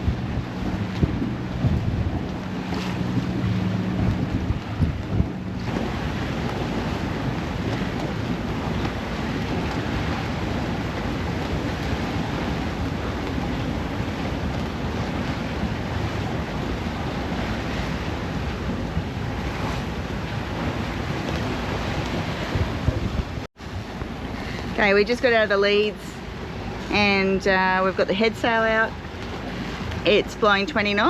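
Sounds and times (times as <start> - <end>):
waves washing against boat: 0.0 - 31.0
wind buffeting microphone: 0.0 - 31.0.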